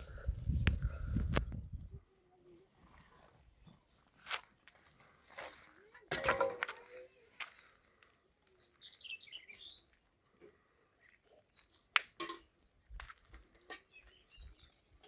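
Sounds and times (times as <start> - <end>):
small bird chirping: 8.0 - 10.0.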